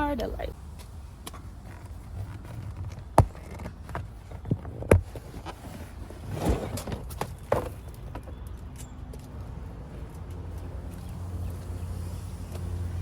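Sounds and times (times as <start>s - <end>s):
sharp knocks and thumps: 1.7s - 8.4s.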